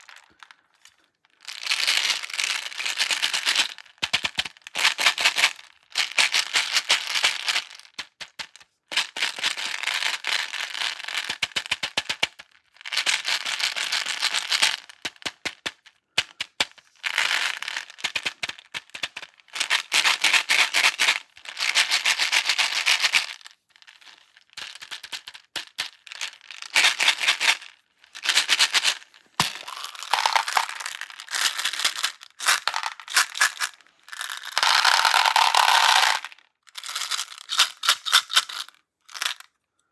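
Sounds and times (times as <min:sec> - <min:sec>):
crackling slime with candies: 0:29.4 - 0:33.4.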